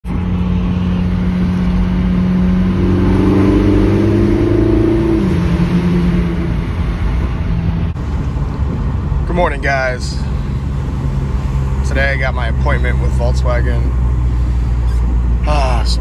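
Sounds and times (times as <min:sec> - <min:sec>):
car engine accelerating: 0:00.0 - 0:09.3.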